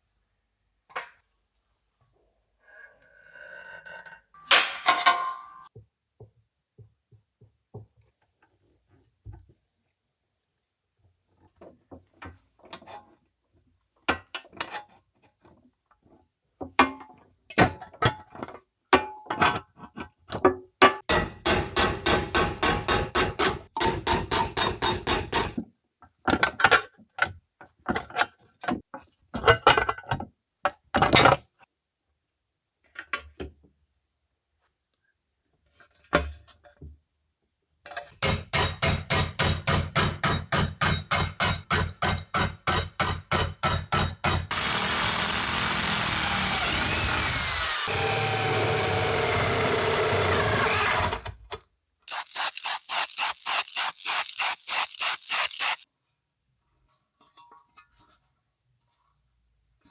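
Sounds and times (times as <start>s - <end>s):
hammer striking sheet metal: 21.1s - 25.6s.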